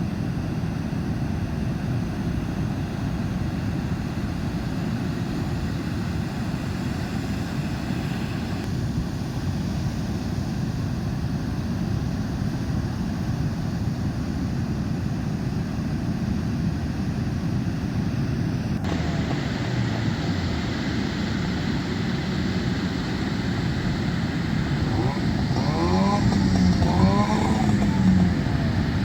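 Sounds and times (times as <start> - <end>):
wind: 0.0 - 29.0
boat engine revving: 18.8 - 29.0
surf: 18.8 - 29.0.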